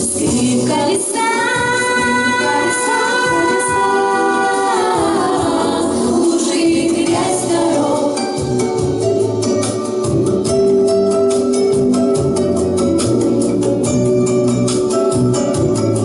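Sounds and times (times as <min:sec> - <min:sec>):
instrumental accompaniment: 0:00.0 - 0:16.0.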